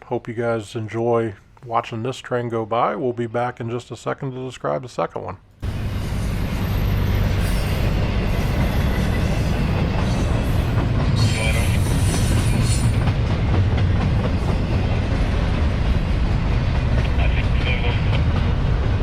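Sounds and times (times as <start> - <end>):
freight train wheels rumbling: 5.6 - 19.0
train wheel squeal: 5.7 - 13.1.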